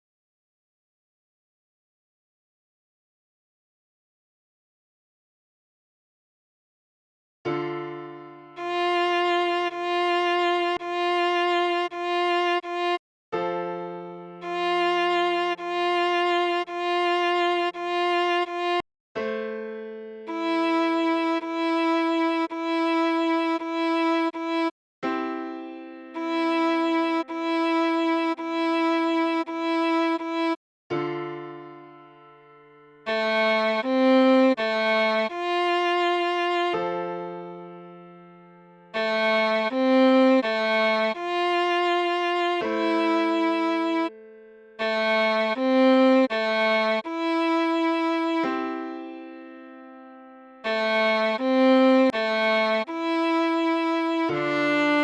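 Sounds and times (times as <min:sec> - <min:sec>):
viola melody: 0:08.6 - 0:13.0, 0:14.4 - 0:18.8, 0:20.3 - 0:24.7, 0:26.2 - 0:30.6, 0:33.0 - 0:36.9, 0:38.9 - 0:44.2, 0:44.8 - 0:49.1, 0:50.6 - 0:55.0.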